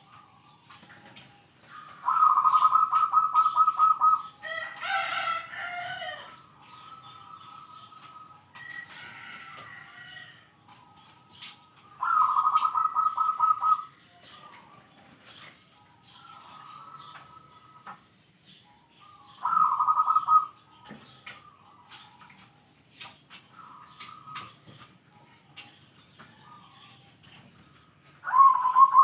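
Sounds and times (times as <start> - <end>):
dove cooing rapidly: 1.7 - 4.3, 12.0 - 14.7, 19.4 - 20.6, 28.2 - 29.0.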